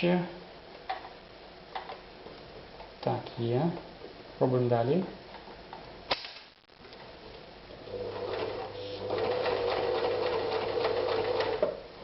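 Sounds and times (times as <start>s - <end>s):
sewing machine stitching leather: 7.9s - 11.8s.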